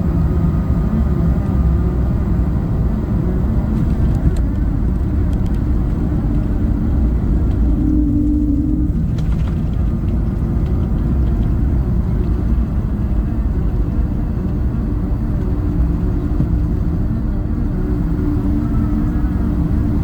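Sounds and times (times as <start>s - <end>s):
aircraft cabin engine rumble: 0.0s - 20.0s
faint steady hum: 0.0s - 20.0s.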